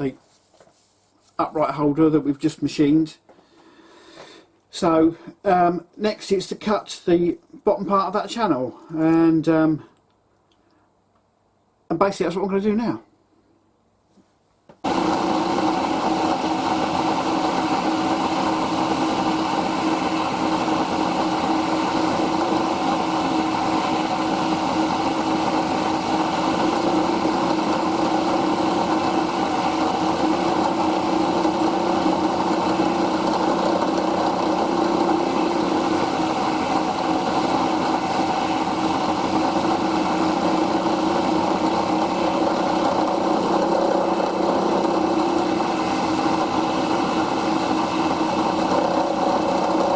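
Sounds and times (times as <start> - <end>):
milling machine humming: 14.8 - 49.9.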